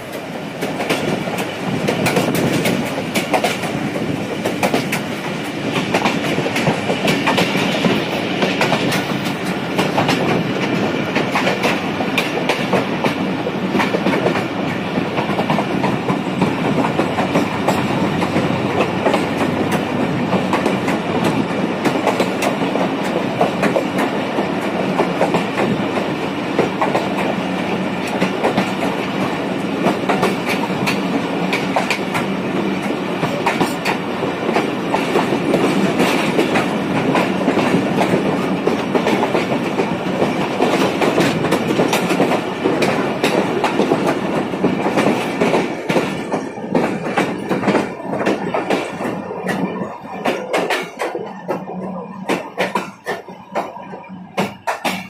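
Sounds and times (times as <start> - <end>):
train coaches rumbling: 0.0 - 55.0.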